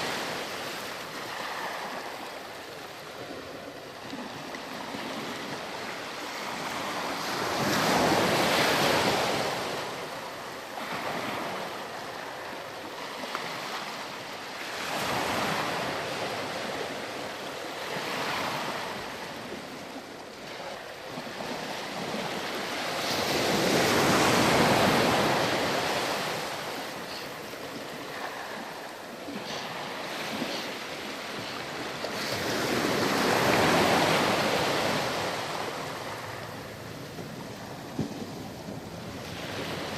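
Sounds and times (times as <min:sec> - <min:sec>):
ocean surf on sandy beach: 0:00.0 - 0:39.9.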